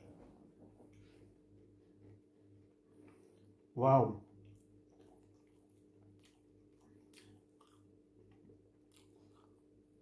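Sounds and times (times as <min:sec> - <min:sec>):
faint low hum: 0:00.0 - 0:10.0
chewing and wet mouth clicks: 0:04.4 - 0:09.8.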